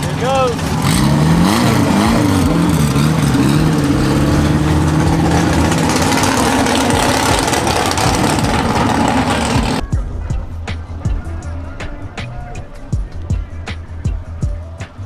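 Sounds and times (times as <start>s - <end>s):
car engine revving: 0.0s - 9.8s.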